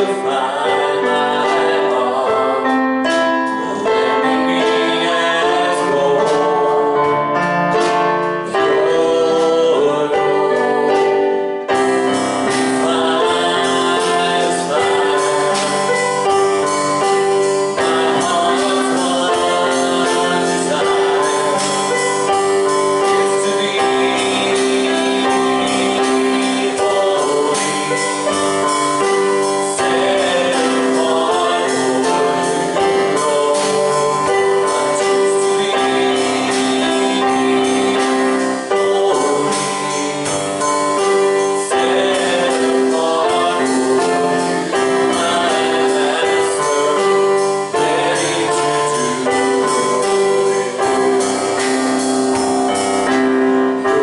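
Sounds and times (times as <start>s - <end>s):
keyboard chords: 0.0s - 54.0s
person singing: 0.0s - 54.0s.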